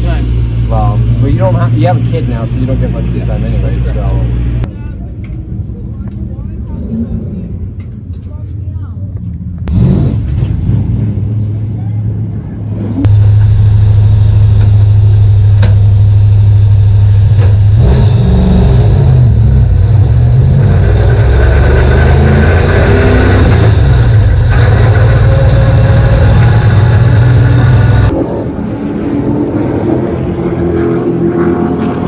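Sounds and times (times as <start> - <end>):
race car engine running: 9.7 - 28.1.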